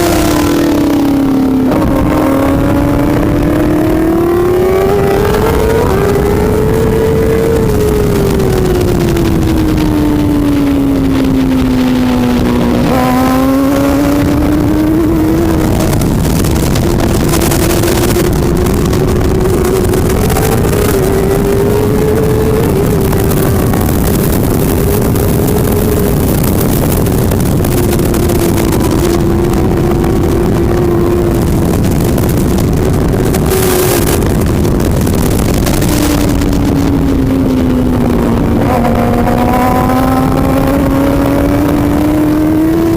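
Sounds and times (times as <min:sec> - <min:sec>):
superbike engine running hard: 0:00.0 - 0:42.9.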